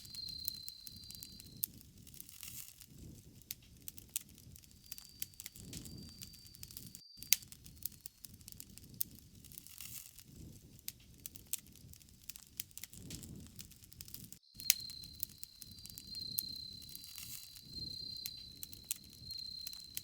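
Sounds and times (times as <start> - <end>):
burning wood crackling and popping: 0.0 - 20.0
soft rush of flame: 7.7 - 20.0.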